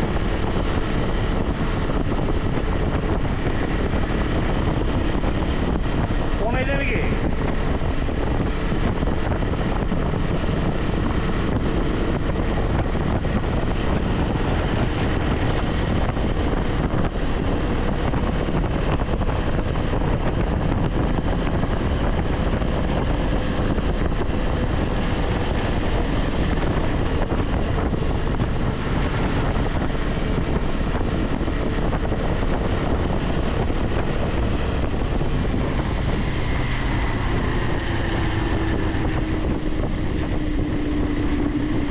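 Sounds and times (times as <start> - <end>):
motorcycle engine cruising: 0.0 - 41.9
wind rushing over microphone: 0.0 - 41.9.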